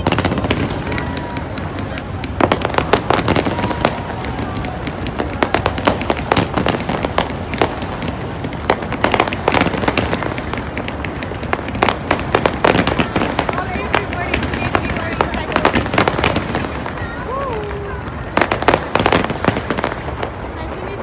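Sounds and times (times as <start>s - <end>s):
fireworks bangs and pops: 0.0s - 21.0s.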